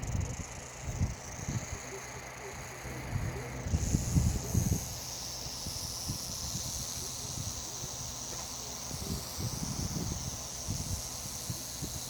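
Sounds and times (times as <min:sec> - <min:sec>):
rattlesnake tail rattling: 0:00.0 - 0:12.0.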